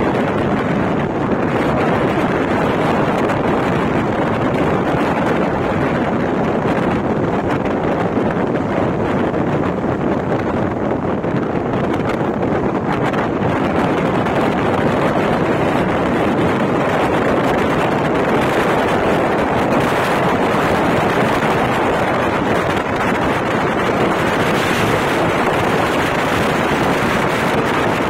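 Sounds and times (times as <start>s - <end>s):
train rushing and rumbling: 0.0s - 28.0s
wind buffeting microphone: 0.0s - 28.0s.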